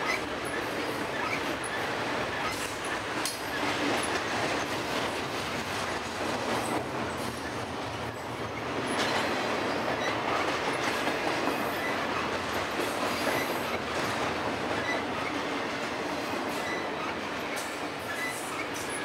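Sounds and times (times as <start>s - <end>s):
train wheels rolling on rail: 0.0s - 19.0s
faint high wheel squeals: 16.6s - 17.2s.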